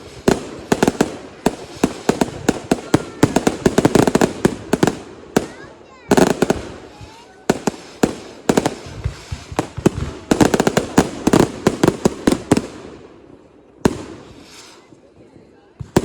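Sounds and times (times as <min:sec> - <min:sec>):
fireworks bangs: 0:00.0 - 0:16.0.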